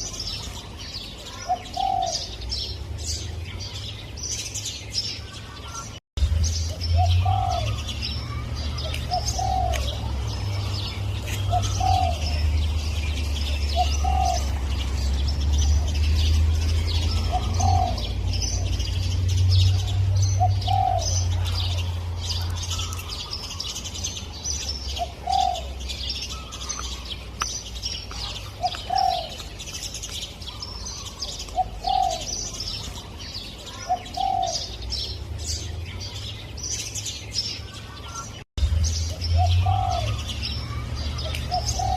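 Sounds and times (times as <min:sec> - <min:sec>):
small birds chirping: 0:00.0 - 0:41.9
dove cooing: 0:01.2 - 0:02.4, 0:07.0 - 0:10.4, 0:11.2 - 0:15.0, 0:16.9 - 0:19.0, 0:19.7 - 0:23.1, 0:24.9 - 0:27.0, 0:28.1 - 0:29.5, 0:30.6 - 0:32.6, 0:33.7 - 0:34.8, 0:39.4 - 0:41.9.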